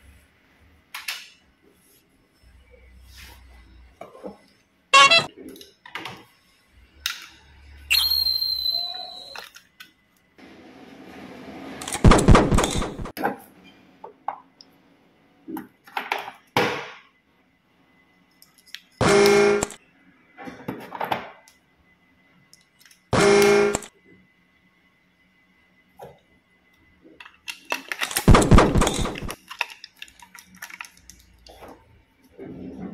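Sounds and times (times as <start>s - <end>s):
buzzy horn-like tones: 5.0s - 5.3s.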